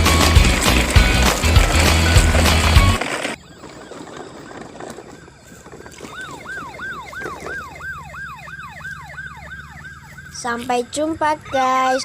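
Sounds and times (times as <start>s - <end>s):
toy siren wailing: 3.1s - 12.0s.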